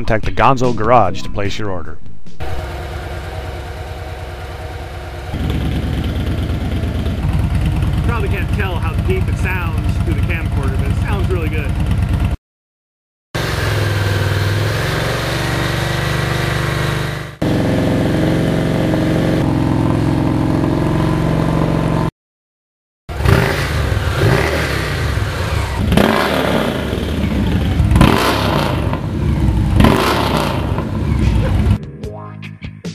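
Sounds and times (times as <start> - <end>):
motorcycle engine running: 2.4 - 12.4, 13.4 - 22.1, 23.1 - 31.8
motorcycle throttle blips: 2.4 - 12.4.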